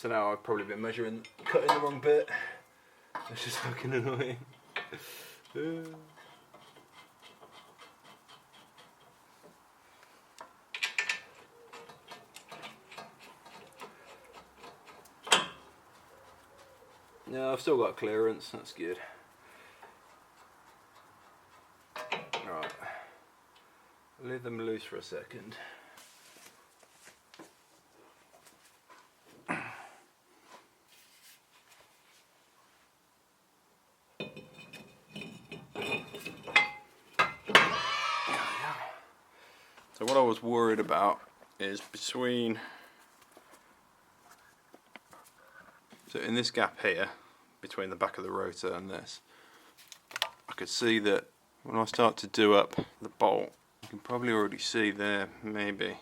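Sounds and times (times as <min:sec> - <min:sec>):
metal clicks clattering: 0:21.9 - 0:22.8
metal parts clinking and rattling: 0:21.9 - 0:22.8, 0:34.2 - 0:37.8.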